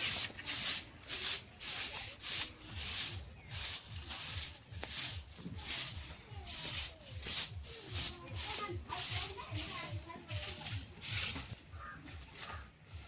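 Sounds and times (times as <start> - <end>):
scrubbing strokes: 0.0 - 13.0.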